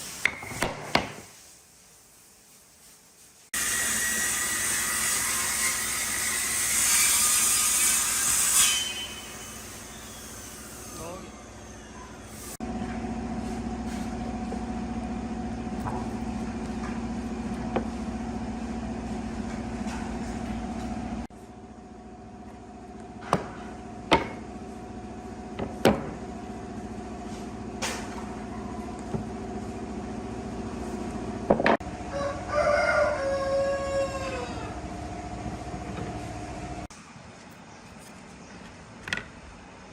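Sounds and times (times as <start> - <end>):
sharp knocks: 23.3 - 24.4
rooster crowing: 32.0 - 34.8.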